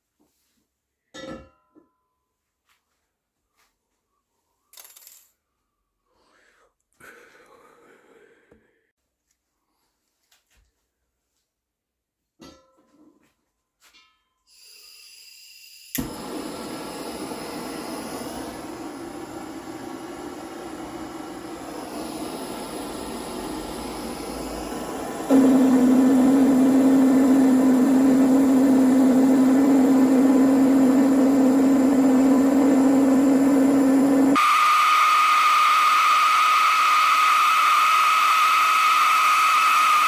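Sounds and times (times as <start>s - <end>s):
power tool motor humming: 16.0s - 40.0s.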